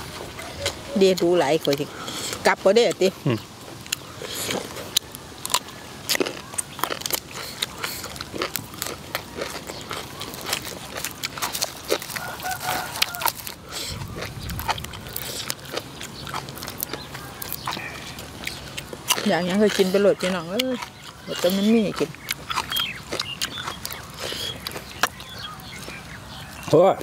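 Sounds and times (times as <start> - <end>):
wet chewing and crunching: 0.0 - 27.0.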